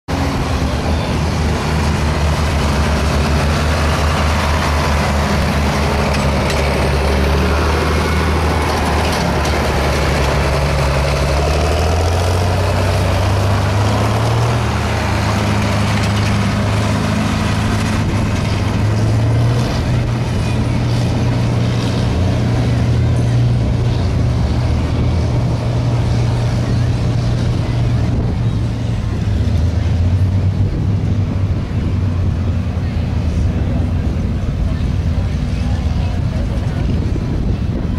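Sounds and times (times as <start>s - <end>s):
truck engine under heavy load: 0.0s - 37.9s.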